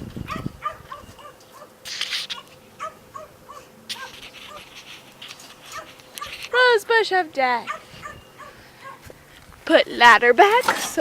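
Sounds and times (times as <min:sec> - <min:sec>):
brief rustles: 0:03.9 - 0:06.6.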